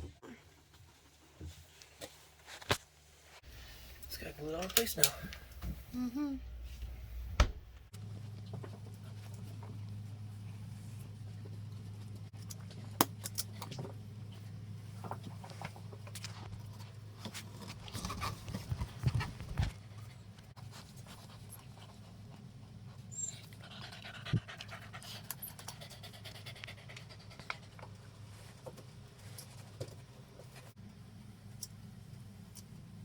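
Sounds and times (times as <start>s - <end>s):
dog panting: 23.3s - 27.9s.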